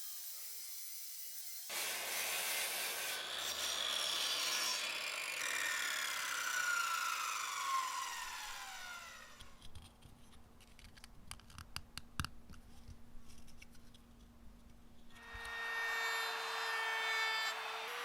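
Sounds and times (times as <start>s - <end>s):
power tool winding down: 1.5s - 9.6s, 15.2s - 18.0s
handling clicks and taps: 9.4s - 14.8s.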